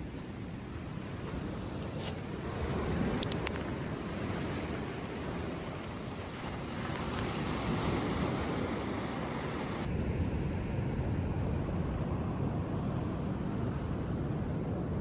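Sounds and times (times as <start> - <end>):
surf washing on beach: 0.0 - 10.2.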